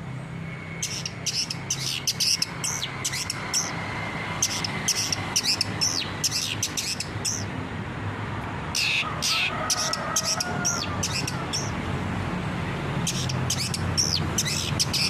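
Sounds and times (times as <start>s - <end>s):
bird singing high chirps: 0.6s - 3.8s, 4.4s - 7.5s, 8.8s - 11.8s, 13.1s - 15.0s.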